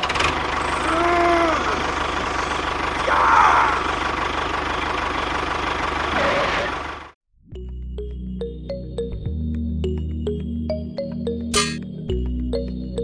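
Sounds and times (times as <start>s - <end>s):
small engine running: 0.0s - 7.2s.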